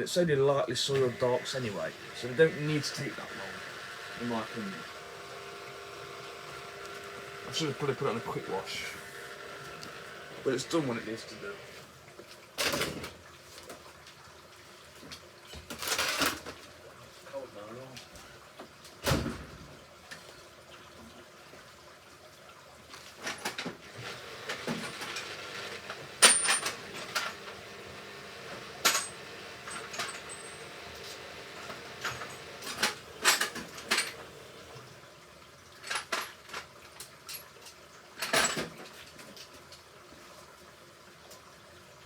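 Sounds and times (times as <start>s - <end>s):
washing machine hum: 0.8s - 12.1s, 23.2s - 35.1s
sharp clicks and metallic clinks: 24.5s - 34.7s.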